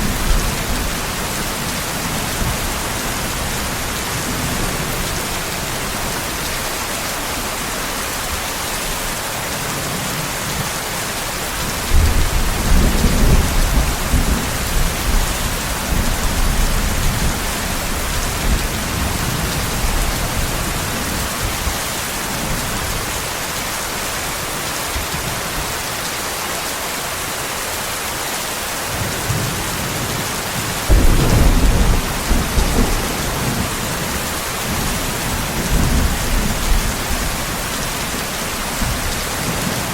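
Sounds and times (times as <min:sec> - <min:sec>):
heavy rain hissing: 0:00.0 - 0:39.9
thunder rumbling: 0:30.9 - 0:37.9.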